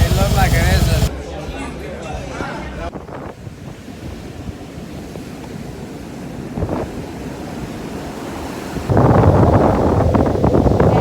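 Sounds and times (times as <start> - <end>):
wind buffeting microphone: 2.9 - 11.0
ocean surf on beach: 3.4 - 11.0.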